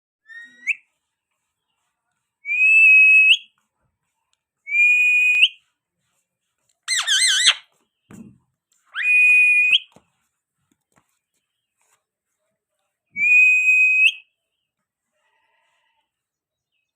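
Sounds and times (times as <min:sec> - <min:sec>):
parrot whistling: 0:00.2 - 0:00.8, 0:02.4 - 0:03.5, 0:06.9 - 0:07.6, 0:09.0 - 0:09.9, 0:13.2 - 0:14.2
parrot warbling trill: 0:06.9 - 0:07.6.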